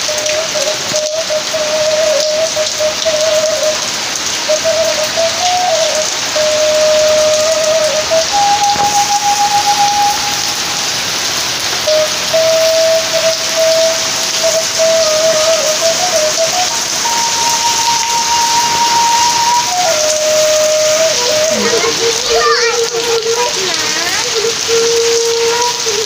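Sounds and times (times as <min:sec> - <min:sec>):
rain on plants and paving: 0:00.0 - 0:26.0
thin melody of held notes: 0:05.4 - 0:11.2, 0:11.8 - 0:23.6.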